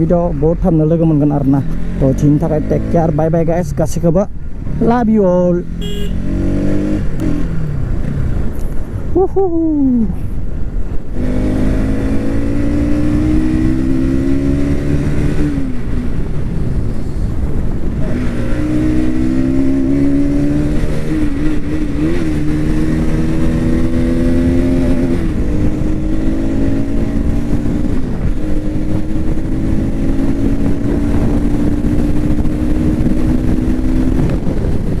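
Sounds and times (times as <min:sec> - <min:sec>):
steady rushing noise: 0:00.0 - 0:35.0
motorcycle engine running hard: 0:04.7 - 0:07.9, 0:11.4 - 0:35.0.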